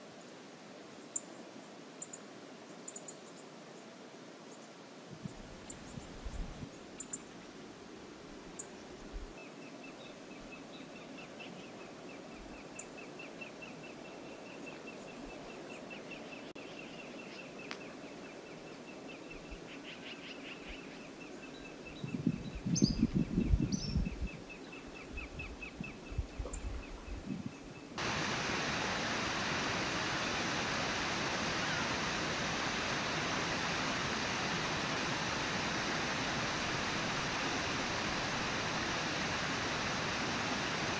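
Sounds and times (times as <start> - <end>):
wind thumps on microphone: 22.0 - 24.4
river rushing: 28.0 - 40.9.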